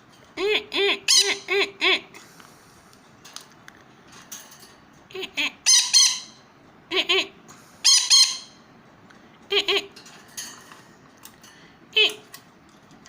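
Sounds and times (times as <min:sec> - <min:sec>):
parrot squawking harshly: 0:00.7 - 0:02.0, 0:05.5 - 0:06.4, 0:07.2 - 0:08.6.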